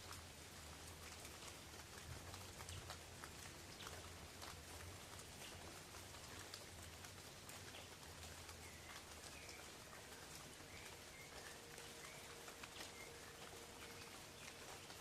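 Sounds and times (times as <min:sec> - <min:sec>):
rain on leaves: 0:00.0 - 0:15.0
bird chirping: 0:08.5 - 0:15.0.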